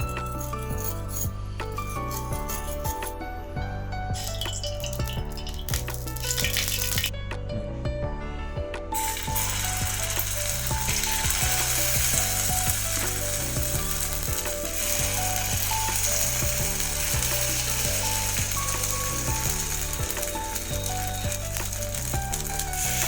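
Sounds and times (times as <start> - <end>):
soft background music: 0.0 - 23.0
batter frying in hot oil: 4.2 - 7.1, 9.0 - 23.0.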